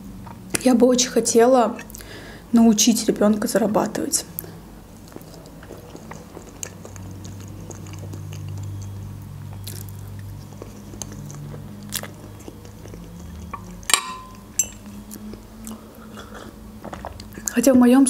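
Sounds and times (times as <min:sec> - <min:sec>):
mouth chewing: 0:04.2 - 0:17.6
fork clinking on plate: 0:13.9 - 0:14.9.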